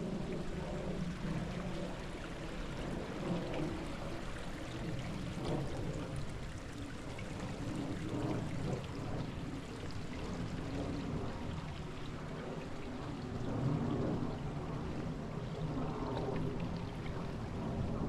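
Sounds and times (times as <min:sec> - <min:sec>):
creek water flowing: 0:00.0 - 0:18.0.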